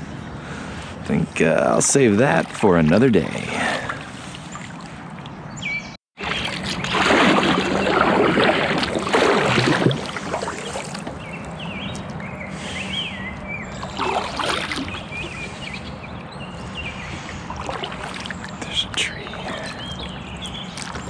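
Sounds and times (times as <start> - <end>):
running water: 6.2 - 11.2, 13.8 - 15.4, 17.4 - 21.0
paddle splashing in water: 6.2 - 11.4, 13.8 - 15.4, 17.1 - 18.7, 19.3 - 21.0.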